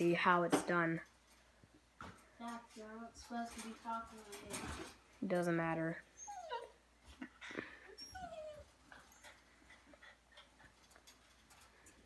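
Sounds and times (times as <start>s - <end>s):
dog whimpering: 6.2s - 6.8s, 7.8s - 9.4s.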